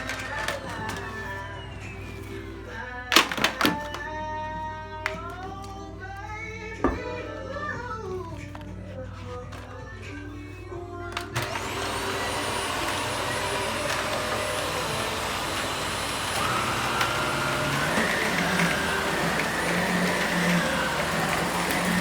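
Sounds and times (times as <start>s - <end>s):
vacuum cleaner running: 0.0s - 4.0s, 11.1s - 22.0s.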